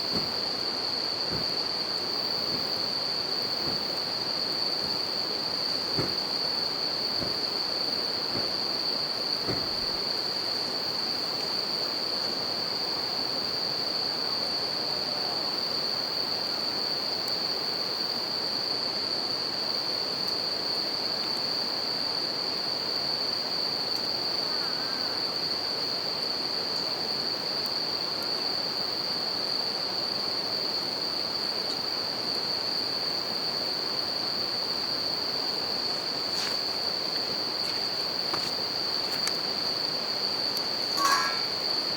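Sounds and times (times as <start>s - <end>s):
campfire crackling: 0.0s - 10.7s
crickets singing: 0.0s - 41.9s.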